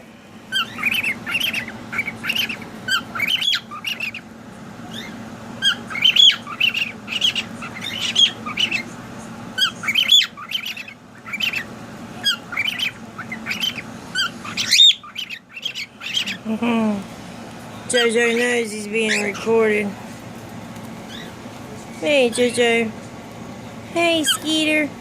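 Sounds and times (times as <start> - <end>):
steady low hum: 0.0 - 25.0
cockatiels chirping and squawking: 0.5 - 16.5, 17.9 - 19.9, 20.8 - 21.5, 24.2 - 24.8.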